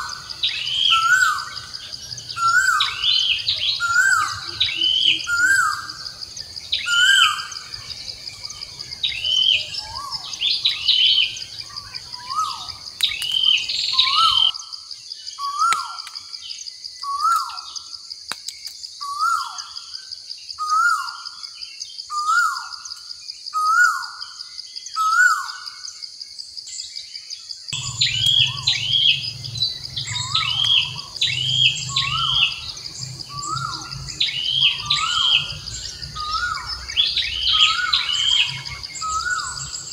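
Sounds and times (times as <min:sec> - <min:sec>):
high bird chirps: 0:00.0 - 0:14.6, 0:27.8 - 0:39.9
falling bird call: 0:12.2 - 0:14.5, 0:27.8 - 0:39.9
low hum: 0:27.8 - 0:37.4
steady high buzz: 0:27.8 - 0:39.9.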